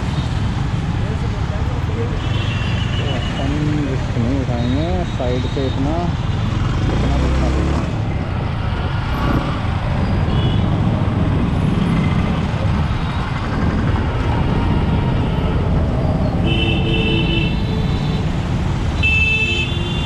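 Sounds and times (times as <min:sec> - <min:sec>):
road rumble: 0:00.0 - 0:20.0
vehicle horn honking: 0:19.0 - 0:20.0.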